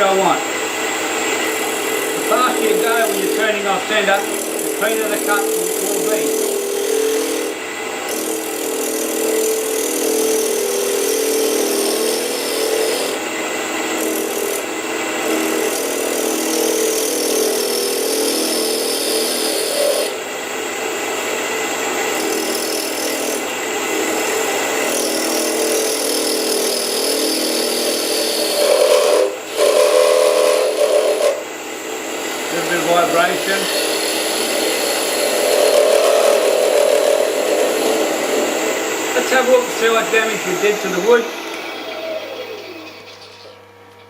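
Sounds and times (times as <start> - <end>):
wood lathe humming: 0.0 - 43.7
gouge scraping wood: 25.8 - 31.4, 32.6 - 43.6.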